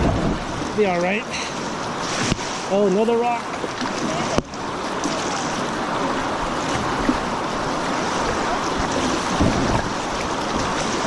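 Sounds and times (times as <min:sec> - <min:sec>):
wind noise on microphone: 0:00.0 - 0:01.0, 0:05.1 - 0:11.0
stream water rushing: 0:00.0 - 0:11.0.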